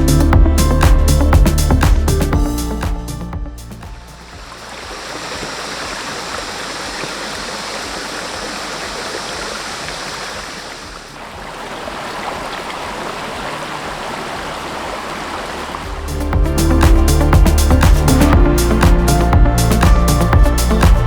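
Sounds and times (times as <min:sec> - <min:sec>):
stream water flowing: 0:03.8 - 0:21.0.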